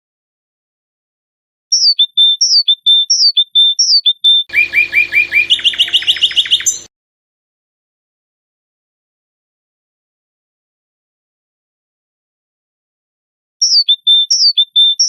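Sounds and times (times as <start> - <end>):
songbird singing: 1.7 - 6.9, 13.6 - 15.0.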